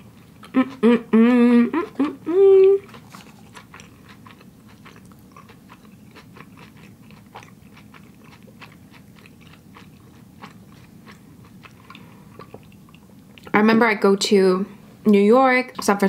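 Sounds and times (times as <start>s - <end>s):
wet chewing clicks and smacks: 2.8s - 13.5s.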